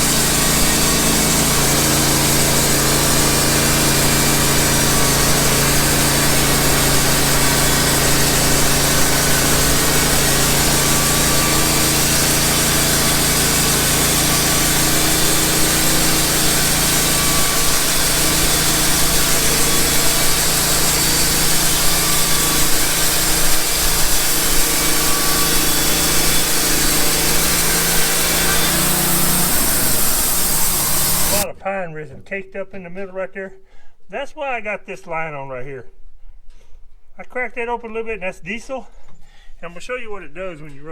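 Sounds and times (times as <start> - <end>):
band sawmill sawing log: 0.0 - 31.5.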